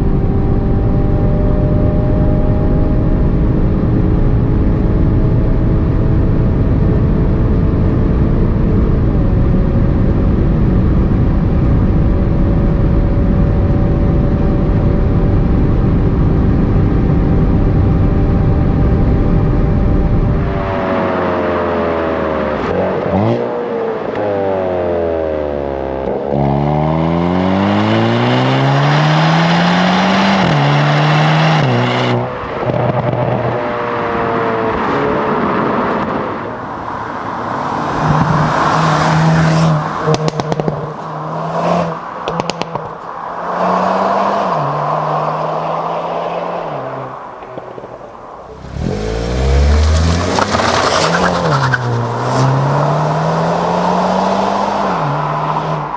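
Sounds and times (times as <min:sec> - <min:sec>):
car engine accelerating hard: 0:00.0 - 0:55.9
sharp exhaust crackles: 0:36.4 - 0:53.6.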